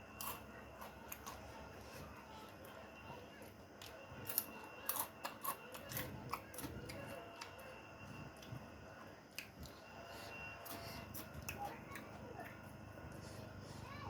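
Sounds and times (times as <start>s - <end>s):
chewing crunchy food: 0.0s - 13.9s.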